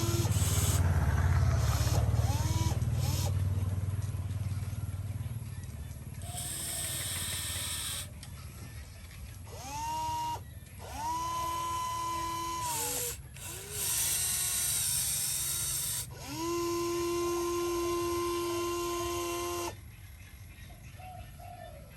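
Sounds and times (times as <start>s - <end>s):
small electric motor whining: 0.0s - 3.4s, 6.2s - 8.2s, 9.5s - 19.8s.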